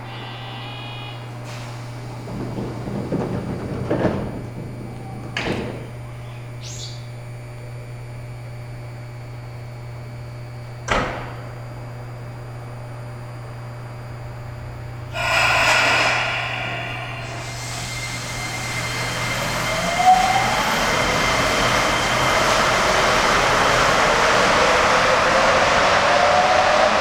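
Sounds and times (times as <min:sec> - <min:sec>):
sharp knocks and clunks: 0:02.3 - 0:06.0
rush of noise with high tones: 0:15.1 - 0:19.1.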